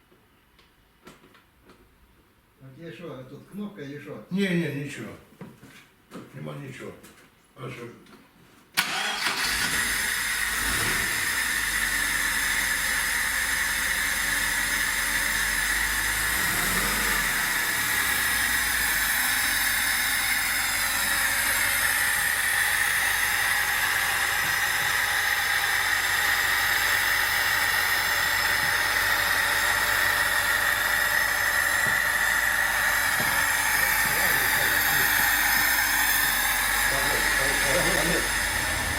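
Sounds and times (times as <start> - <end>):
car engine idling: 8.8 - 38.9.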